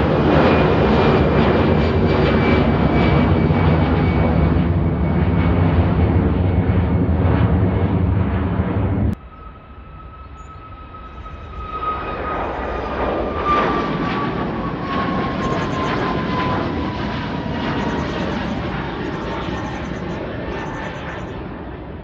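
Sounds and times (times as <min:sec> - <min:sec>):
airliner engines rumbling: 0:00.0 - 0:22.0
high engine whine falling in pitch: 0:09.1 - 0:12.8.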